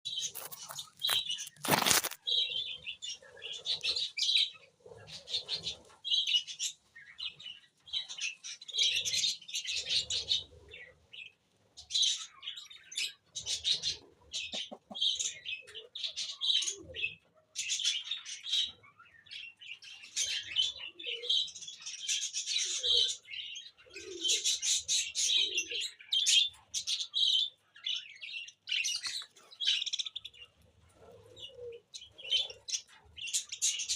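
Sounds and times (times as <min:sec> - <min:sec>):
pet birds chirping: 0:00.1 - 0:11.3, 0:11.9 - 0:33.9
loud crackle: 0:00.3 - 0:02.2.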